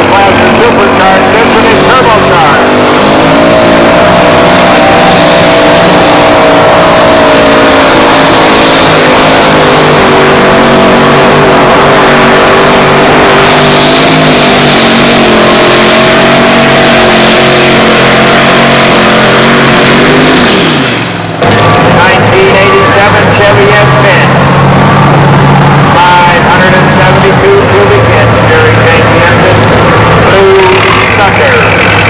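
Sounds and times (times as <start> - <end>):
truck engine at full throttle: 0.0 - 32.0.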